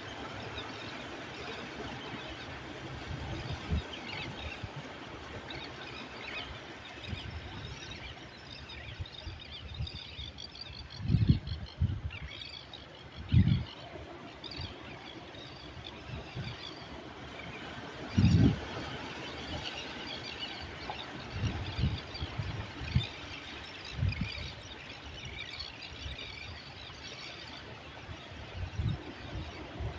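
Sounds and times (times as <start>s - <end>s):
sea rushing: 0.0s - 9.5s, 13.0s - 29.9s.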